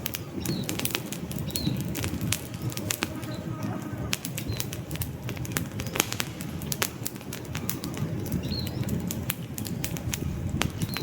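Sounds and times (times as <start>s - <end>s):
campfire crackling and popping: 0.0s - 11.0s
low rumble of flames: 0.0s - 11.0s
faint bird chirps: 7.8s - 8.9s.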